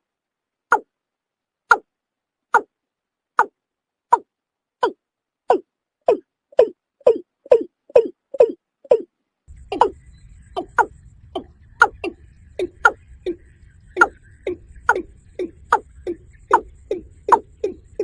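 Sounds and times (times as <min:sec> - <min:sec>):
bird calling in falling notes: 0:04.8 - 0:18.0
low steady hum: 0:06.6 - 0:18.0.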